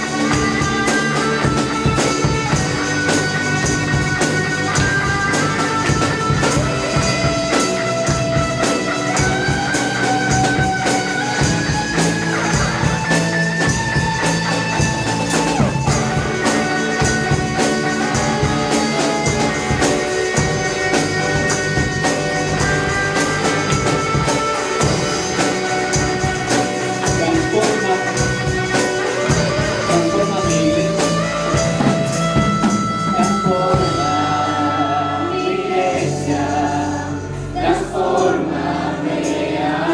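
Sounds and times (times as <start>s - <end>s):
tambourine: 0.0s - 39.9s
worship band playing: 0.0s - 39.9s.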